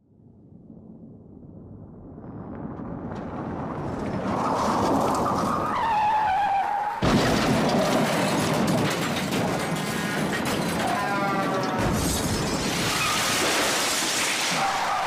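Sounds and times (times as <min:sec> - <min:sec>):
car crash: 0:02.4 - 0:15.0
clattering debris: 0:07.0 - 0:15.0.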